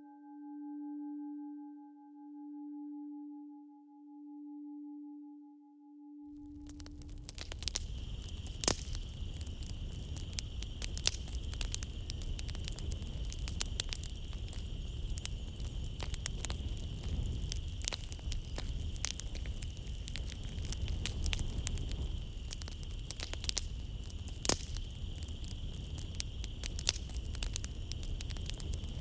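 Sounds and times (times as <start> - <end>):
wood fire crackling and popping: 6.4 - 29.0
night insects chorus: 6.6 - 29.0.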